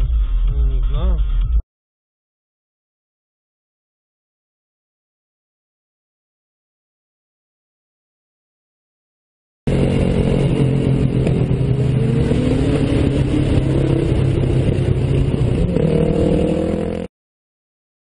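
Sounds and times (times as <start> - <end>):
car engine and road noise: 9.7 - 17.1.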